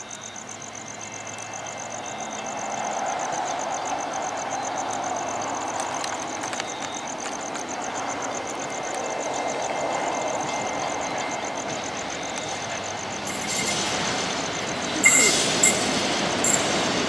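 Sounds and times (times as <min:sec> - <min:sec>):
distant train rumble: 0:00.0 - 0:17.0
fast high-pitched pulsing: 0:14.8 - 0:16.8.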